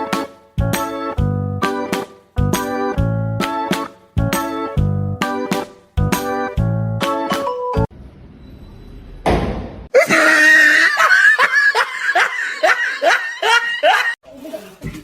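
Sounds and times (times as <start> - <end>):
person laughing hard: 9.9 - 14.2.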